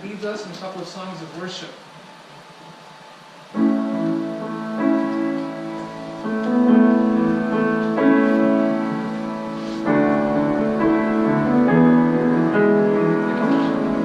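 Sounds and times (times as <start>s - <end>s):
piano playing slow chords: 3.4s - 14.0s.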